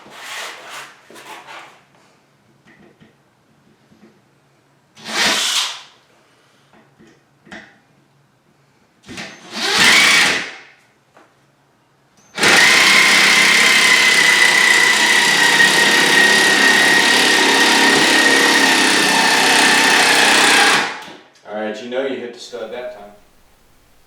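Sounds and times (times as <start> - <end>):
power drill driving a screw: 5.0 - 5.9, 9.4 - 10.6, 12.4 - 21.2.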